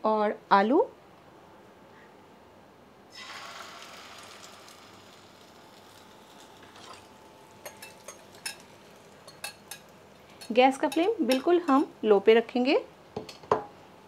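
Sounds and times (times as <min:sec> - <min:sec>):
batter sizzling in hot oil: 0:03.1 - 0:10.6.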